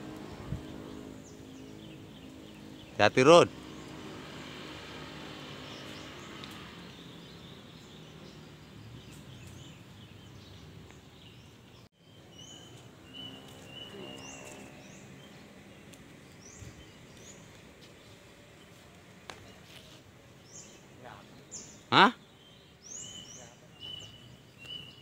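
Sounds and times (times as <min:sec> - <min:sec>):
low outdoor rumble: 0:00.0 - 0:11.8
high bird chirps: 0:05.4 - 0:18.2, 0:20.5 - 0:25.0.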